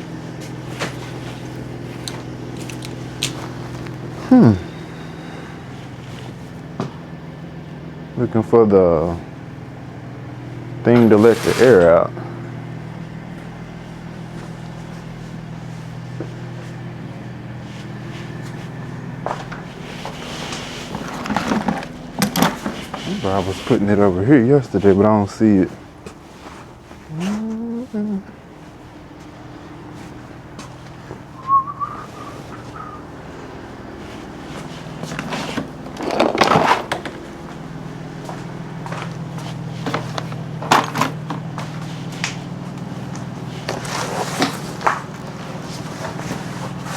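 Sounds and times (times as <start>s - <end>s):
low mechanical hum: 0.0s - 46.9s
items clattering and rustling: 0.3s - 7.0s, 17.8s - 24.0s, 34.0s - 46.9s
wavering high whistle: 31.3s - 33.3s.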